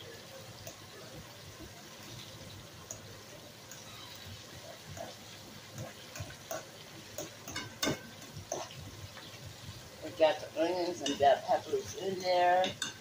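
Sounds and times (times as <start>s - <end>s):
meat sizzling in a pot: 0.0s - 13.0s
metal utensil scraping and clinking: 3.7s - 9.3s.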